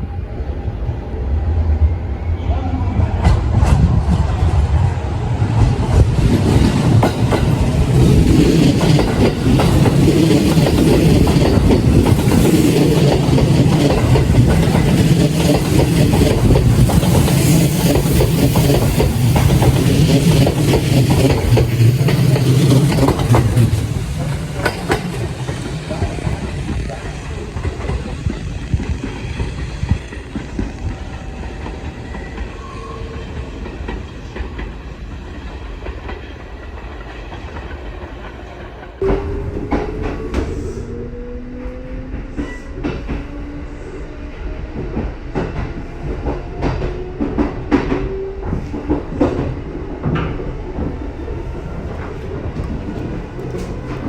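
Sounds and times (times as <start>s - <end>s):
electric train rumbling: 0.0s - 54.0s
wheels clacking over rail joints: 5.6s - 32.5s.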